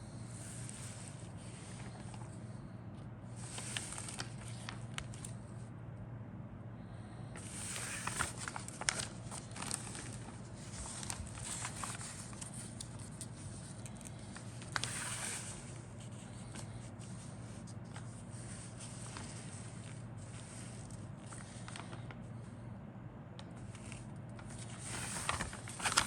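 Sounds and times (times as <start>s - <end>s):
steady low hum: 0.0s - 26.0s
plastic bags rustling: 3.4s - 5.3s, 7.4s - 22.1s, 23.8s - 26.0s.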